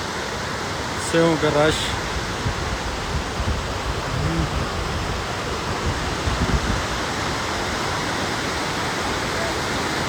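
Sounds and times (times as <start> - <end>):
waterfall rushing: 0.0 - 10.0
wind rumble on microphone: 2.0 - 8.0.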